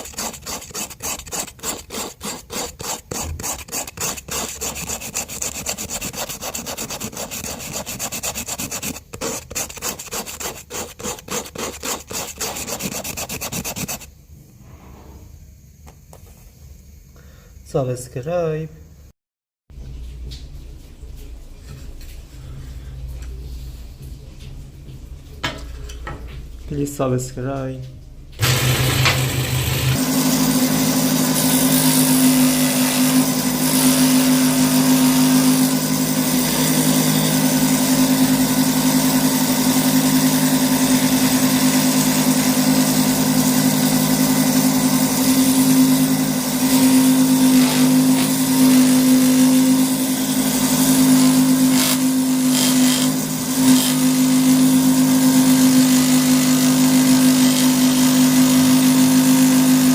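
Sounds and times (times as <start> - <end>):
electric power tool motor: 0.0 - 14.1, 28.4 - 59.9.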